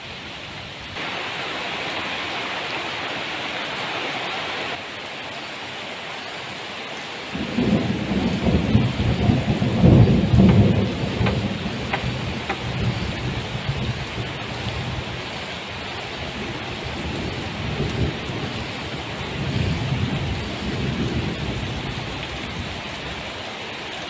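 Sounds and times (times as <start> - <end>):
heavy rain falling: 0.0 - 24.0
rolling thunder rumble: 7.4 - 15.3, 16.2 - 22.8.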